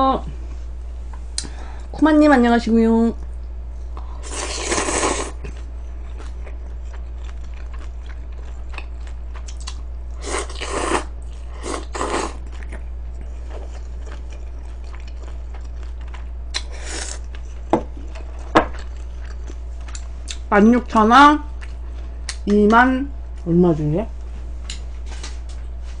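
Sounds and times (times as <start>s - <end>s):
steady low hum: 0.0s - 26.0s
person chewing food: 4.0s - 20.4s, 21.5s - 22.5s.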